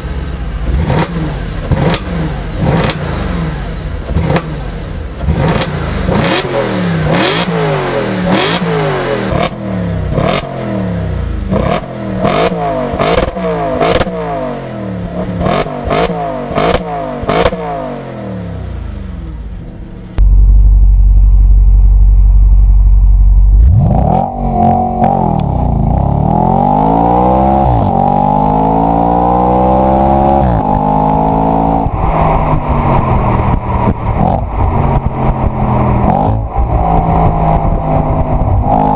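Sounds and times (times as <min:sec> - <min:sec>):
car engine revving: 0:00.0 - 0:38.9
loud deep rumble: 0:00.0 - 0:38.9
exhaust crackles and pops: 0:31.8 - 0:38.9.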